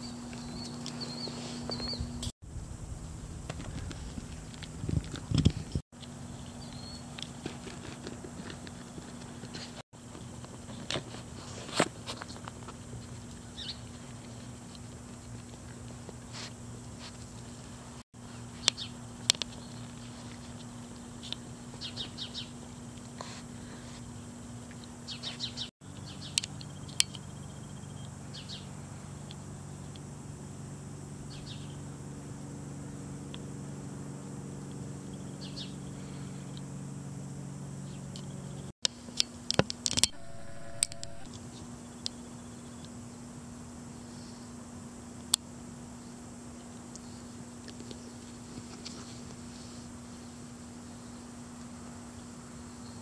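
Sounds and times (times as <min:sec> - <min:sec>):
small birds chirping: 0:00.0 - 0:02.3, 0:03.7 - 0:07.4, 0:13.0 - 0:14.4, 0:18.2 - 0:30.0, 0:31.3 - 0:31.8, 0:35.1 - 0:36.7
steady low hum: 0:00.0 - 0:53.0.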